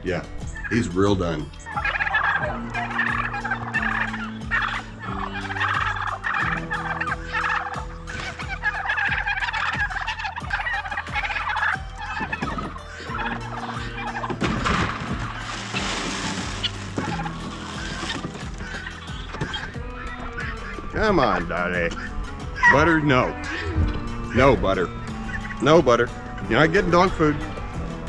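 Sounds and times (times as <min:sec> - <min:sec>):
poultry chattering: 0:01.6 - 0:20.8.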